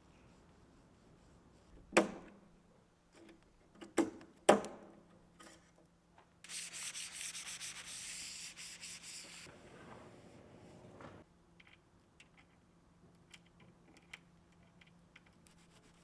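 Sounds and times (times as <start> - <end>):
hand sanding a panel: 6.5 - 9.5.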